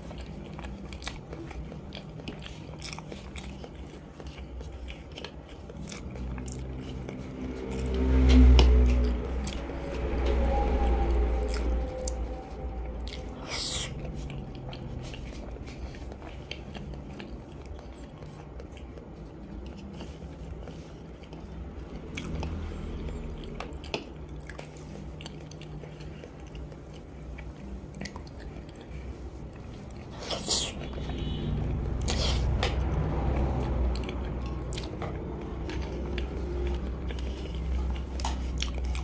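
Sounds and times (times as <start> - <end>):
person biting and chewing eggs: 0.0 - 9.6, 13.0 - 33.2.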